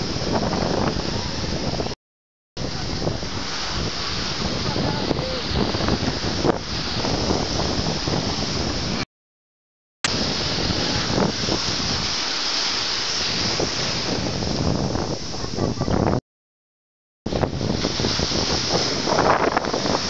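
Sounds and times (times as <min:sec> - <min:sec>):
wind buffeting microphone: 0:00.0 - 0:02.0, 0:02.6 - 0:09.0, 0:10.1 - 0:16.2, 0:17.3 - 0:20.0
surf breaking: 0:02.6 - 0:09.0, 0:10.1 - 0:16.2, 0:17.3 - 0:20.0.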